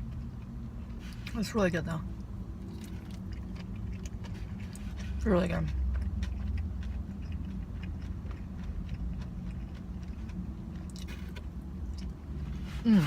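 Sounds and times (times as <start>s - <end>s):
soft chewing: 0.0s - 1.4s, 2.1s - 13.0s
steady low hum: 0.0s - 13.0s.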